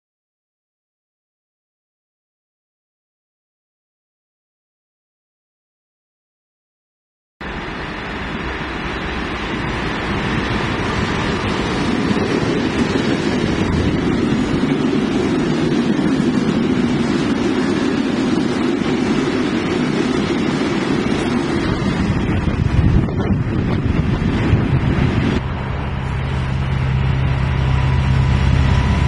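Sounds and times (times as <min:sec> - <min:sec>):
train rumbling: 0:07.4 - 0:29.0.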